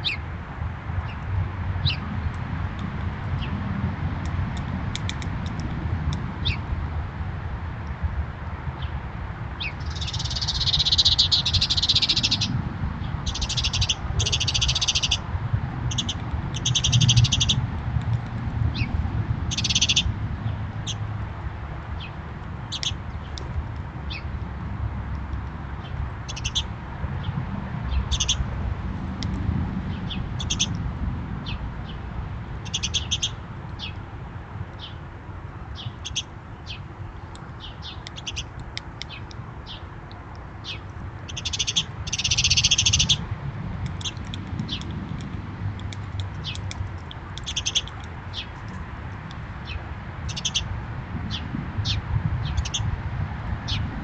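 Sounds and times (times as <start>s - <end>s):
birds chattering: 9.6s - 15.3s, 15.9s - 17.6s, 18.7s - 21.0s, 22.0s - 23.4s, 25.8s - 28.5s, 29.9s - 30.8s, 32.6s - 34.0s, 35.7s - 39.9s, 40.6s - 43.3s, 44.0s - 45.3s, 46.2s - 48.6s, 49.6s - 50.7s, 51.3s - 52.9s.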